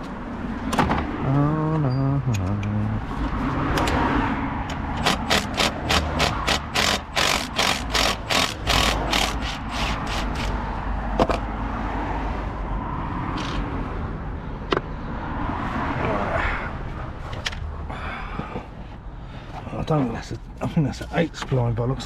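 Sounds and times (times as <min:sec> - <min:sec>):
hand ratchet clicking: 0:04.7 - 0:10.6.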